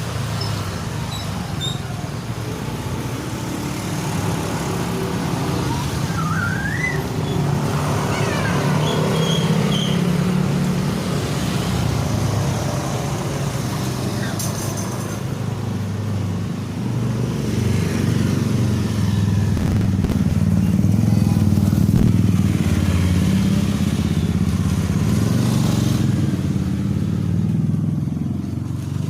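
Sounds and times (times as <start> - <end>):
wavering rising call: 5.4 - 7.6.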